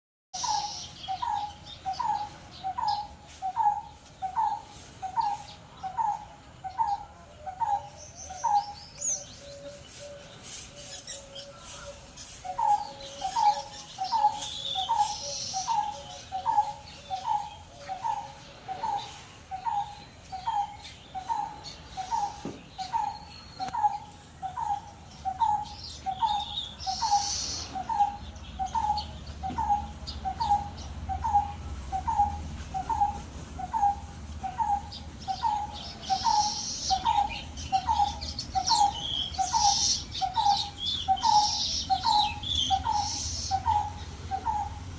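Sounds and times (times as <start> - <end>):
high bird chirps: 0.3 - 44.9
pet bird calling: 12.4 - 44.9.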